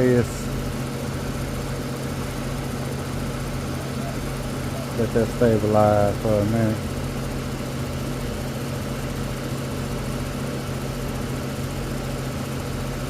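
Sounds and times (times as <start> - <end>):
air conditioner unit humming: 0.0 - 13.0
condenser fan air rush: 0.0 - 13.0.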